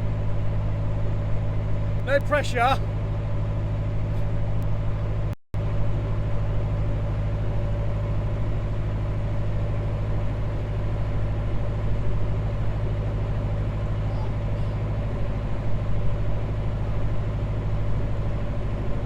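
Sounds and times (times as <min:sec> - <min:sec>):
boat engine humming: 0:00.2 - 0:04.1, 0:06.9 - 0:17.6.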